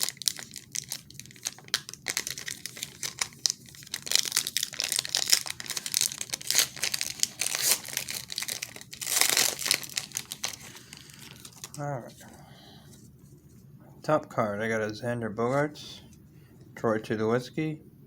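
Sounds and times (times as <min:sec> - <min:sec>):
wrapper crinkling and tearing: 0:00.0 - 0:12.3.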